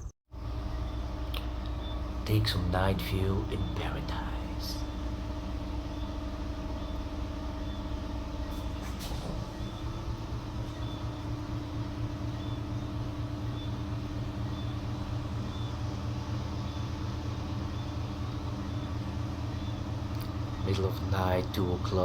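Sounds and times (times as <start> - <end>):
faint high chirp: 0.0 - 2.6, 3.4 - 15.8
low machine hum: 0.0 - 22.0.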